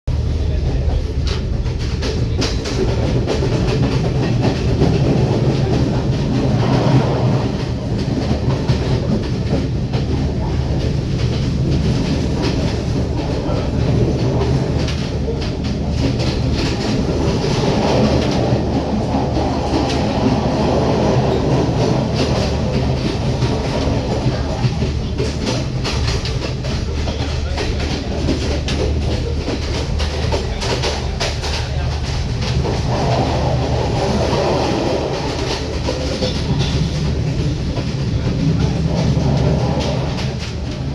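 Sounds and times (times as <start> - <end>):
train low rumble: 0.0 - 40.9
wheels clicking over rail joints: 1.2 - 40.9.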